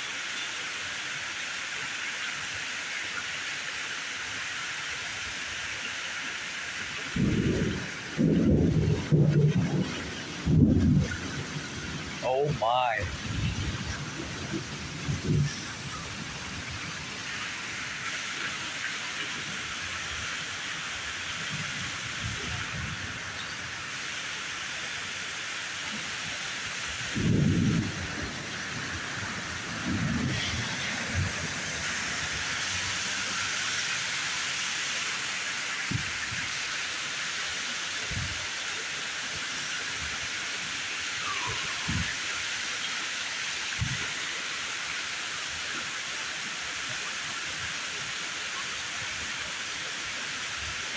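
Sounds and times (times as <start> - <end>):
heavy rain falling: 0.0 - 50.9
thunder rumbling: 7.1 - 18.4, 27.0 - 33.4.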